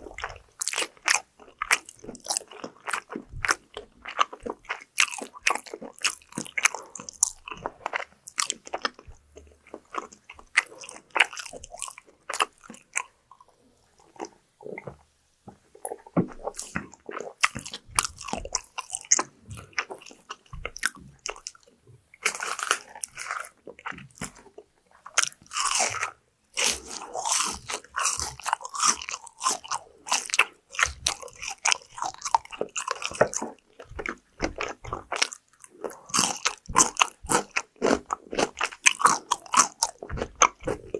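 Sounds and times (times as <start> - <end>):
crunchy chewing of fried food: 0.0 - 40.9.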